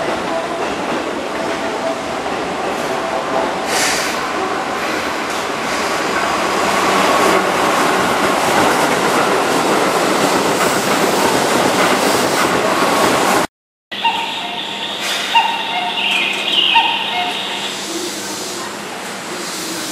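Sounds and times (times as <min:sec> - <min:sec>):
train wheels clattering on rails: 0:00.0 - 0:13.5.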